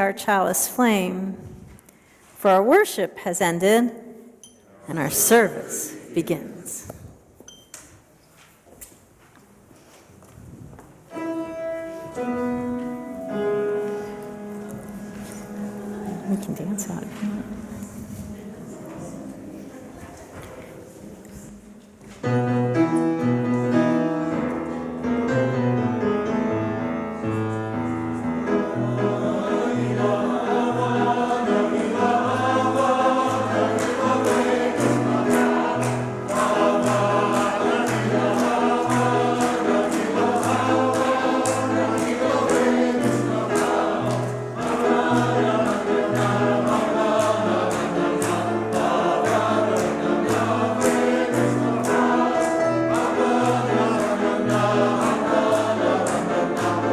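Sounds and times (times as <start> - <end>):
choir singing upbeat song: 28.4 - 56.9.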